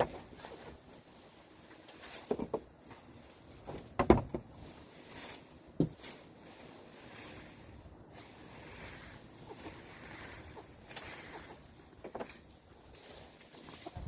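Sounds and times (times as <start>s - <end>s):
sharp knocks: 4.0s - 4.4s.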